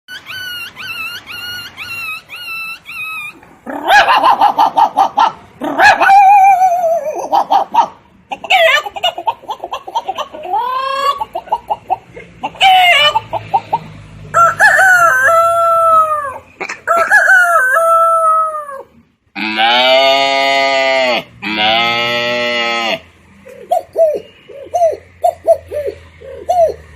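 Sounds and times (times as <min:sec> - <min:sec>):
person mimicking hen clucking: 0:03.7 - 0:26.9
person mimicking rooster crows: 0:14.4 - 0:23.0.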